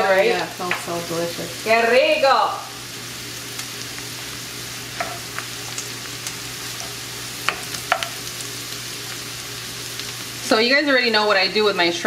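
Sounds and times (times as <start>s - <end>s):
onions sizzling in oil: 0.0s - 12.0s
wooden spoon clicking on pan: 7.4s - 8.2s.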